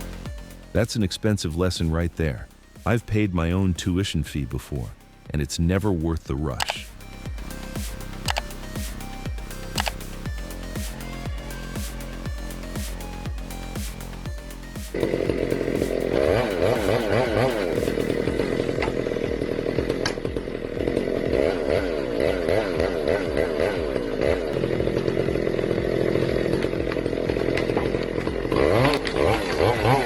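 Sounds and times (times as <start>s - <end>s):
chainsaw cutting at high revs: 0.0s - 0.8s, 6.7s - 30.0s.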